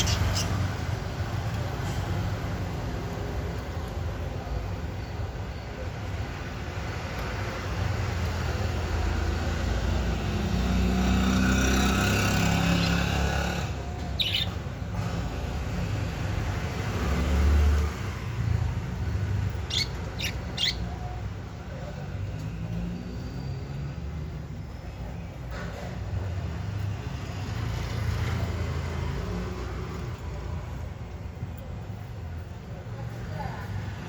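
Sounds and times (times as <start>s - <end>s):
budgerigar chirps: 0.0s - 0.6s, 14.2s - 14.6s, 19.7s - 21.0s
passing vehicle rumble: 7.4s - 34.0s.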